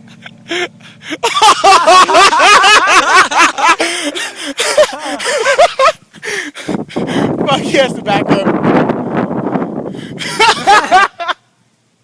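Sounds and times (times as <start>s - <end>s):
young men laughing loudly: 0.0s - 7.4s, 10.1s - 11.4s
low engine hum: 0.0s - 12.0s.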